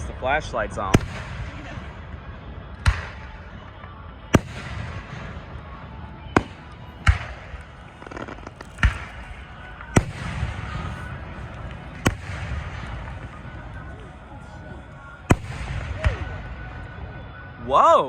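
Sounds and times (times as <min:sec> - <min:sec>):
fireworks crackling: 0:00.0 - 0:16.8
fireworks booming: 0:04.3 - 0:13.8.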